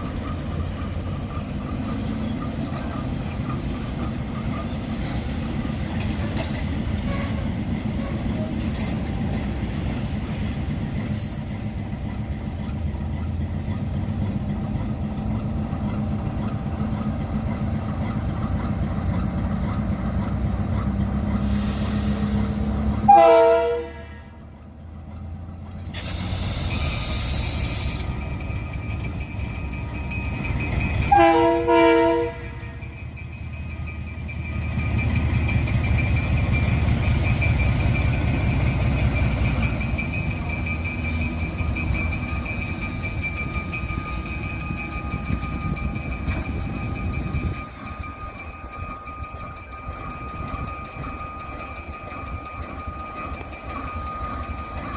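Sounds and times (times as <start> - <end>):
diesel locomotive rumbling: 0.0 - 54.9
train horn blasts: 7.0 - 8.2, 23.0 - 24.4, 31.1 - 32.8
brief hiss: 26.0 - 28.1.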